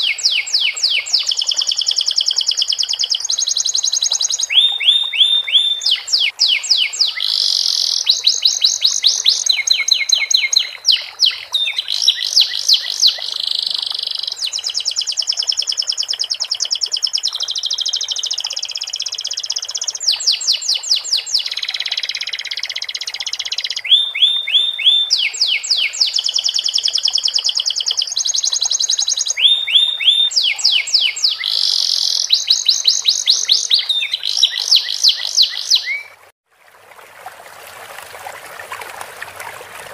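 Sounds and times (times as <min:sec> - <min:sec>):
canary singing trills: 0:00.0 - 0:36.2.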